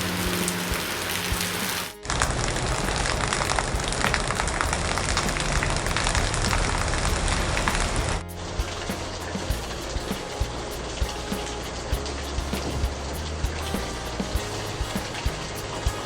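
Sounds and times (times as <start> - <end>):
heavy rain on hard surface: 0.0 - 16.0.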